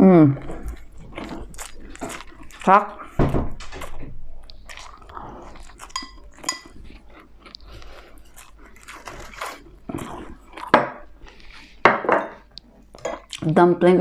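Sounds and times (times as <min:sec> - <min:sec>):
wet chewing and crunching: 0:00.3 - 0:13.6
cutlery clinking against dish: 0:05.9 - 0:06.7.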